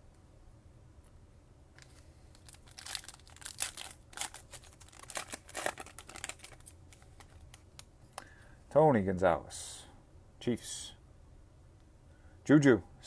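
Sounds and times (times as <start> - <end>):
plastic wrapper tearing and crinkling: 1.8 - 7.9.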